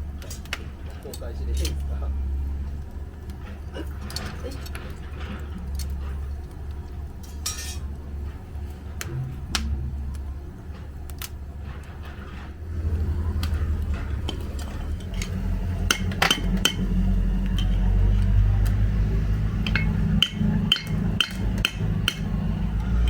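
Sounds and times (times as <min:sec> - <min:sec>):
steady low hum: 0:00.0 - 0:23.0
light metallic clinks and taps: 0:19.6 - 0:22.2.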